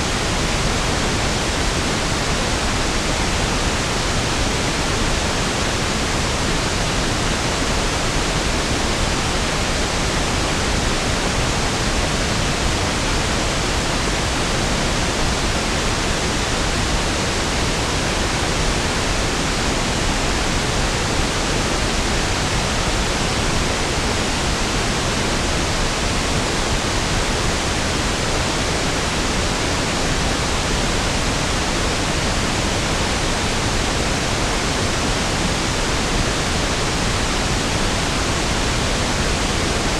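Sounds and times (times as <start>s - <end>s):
steady pink noise: 0.0s - 39.9s.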